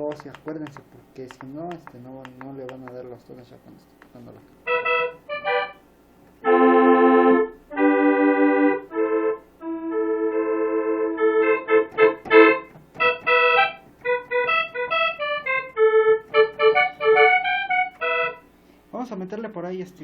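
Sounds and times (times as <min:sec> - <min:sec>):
keyboard saxophone sound: 0:04.6 - 0:05.8, 0:06.4 - 0:18.7.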